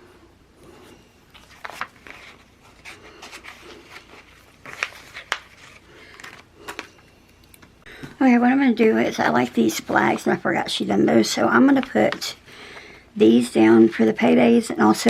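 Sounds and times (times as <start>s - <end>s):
paper rustling: 1.3s - 7.0s.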